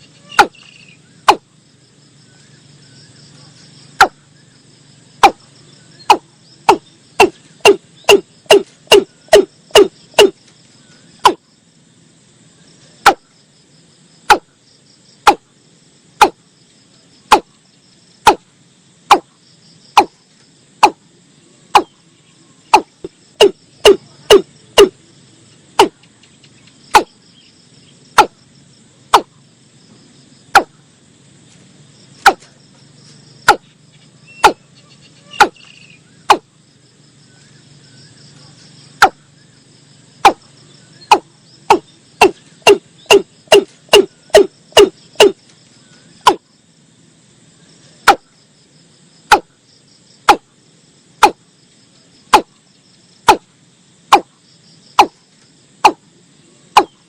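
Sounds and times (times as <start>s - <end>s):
bird calling sharp notes: 0.0s - 1.4s, 6.0s - 10.4s, 34.2s - 36.4s, 41.0s - 45.4s
insect chirring: 0.0s - 57.0s.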